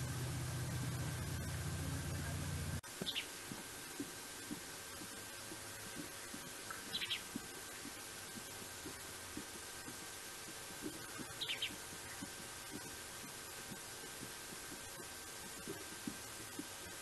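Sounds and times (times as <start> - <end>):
steady hiss: 0.0 - 17.0
bird chirping: 3.0 - 3.3, 6.8 - 7.3, 11.2 - 12.3.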